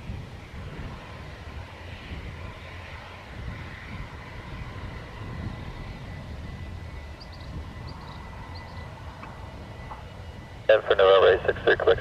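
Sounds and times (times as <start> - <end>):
aircraft engine running: 0.0 - 12.0.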